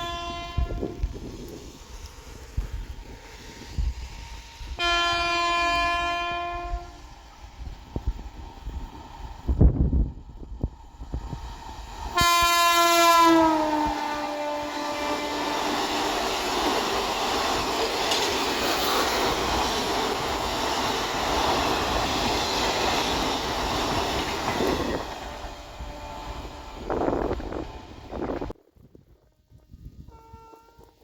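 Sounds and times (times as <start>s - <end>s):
train horn: 0.0s - 1.1s, 4.8s - 7.0s, 12.2s - 16.0s, 24.6s - 28.4s, 29.2s - 31.0s
train wheels rushing on rails: 0.0s - 28.6s.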